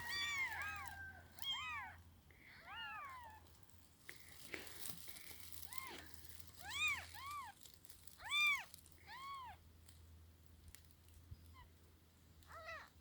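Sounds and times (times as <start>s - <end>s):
kitten meowing: 0.0s - 2.0s, 6.6s - 7.5s, 8.2s - 9.6s.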